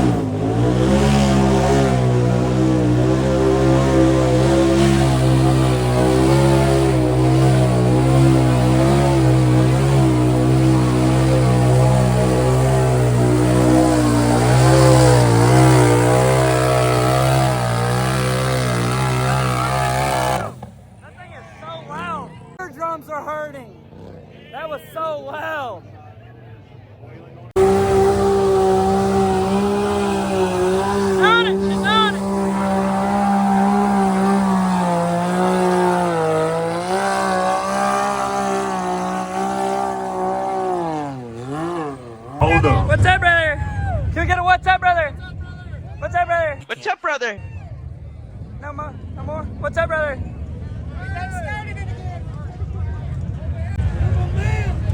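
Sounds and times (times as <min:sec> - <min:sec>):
atv engine at high revs: 0:00.0 - 0:20.9, 0:27.5 - 0:43.2.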